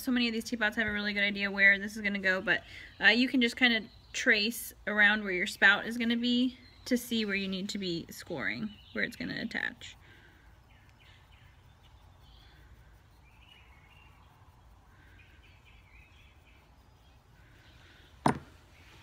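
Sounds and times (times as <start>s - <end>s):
faint bird chirps: 0.1s - 19.0s
sharp knock: 18.2s - 18.5s.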